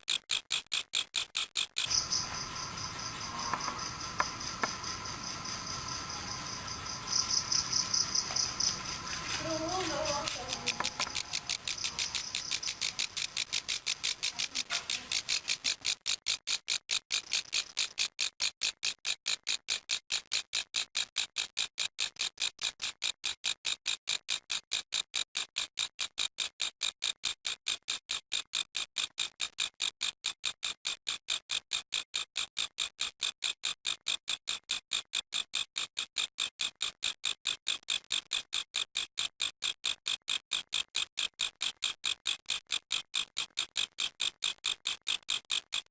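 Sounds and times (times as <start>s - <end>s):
grasshopper stridulating: 1.6s - 18.2s.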